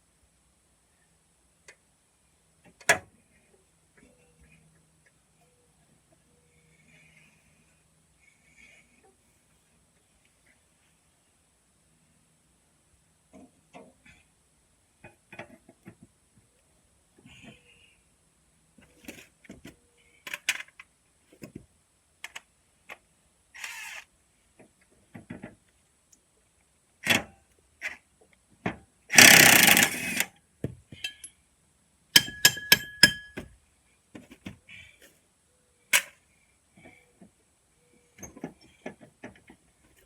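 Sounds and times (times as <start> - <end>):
metal tools clinking and knocking: 31.0 - 31.3, 32.2 - 33.5
ringing metal clinks: 31.0 - 31.4, 32.2 - 33.4.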